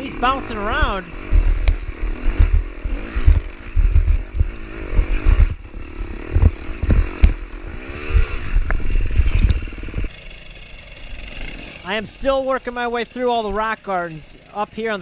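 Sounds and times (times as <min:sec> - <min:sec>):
dirt bike engine revving: 0:00.0 - 0:15.0
bike thumping over rocks: 0:06.2 - 0:07.4.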